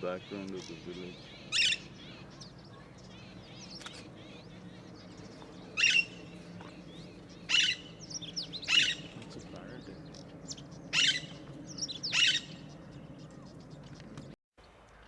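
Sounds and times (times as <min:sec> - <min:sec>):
small birds chirping: 0:00.0 - 0:15.0
parrot screeching: 0:01.4 - 0:02.2, 0:05.8 - 0:06.2, 0:07.5 - 0:07.9, 0:08.7 - 0:09.1, 0:10.9 - 0:11.4, 0:12.0 - 0:12.6.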